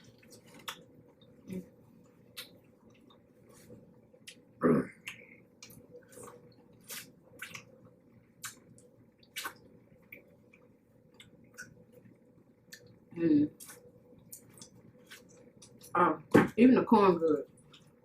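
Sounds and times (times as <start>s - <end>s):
wet chewing and lip smacks: 2.0s - 3.6s, 4.2s - 13.0s, 13.6s - 15.9s.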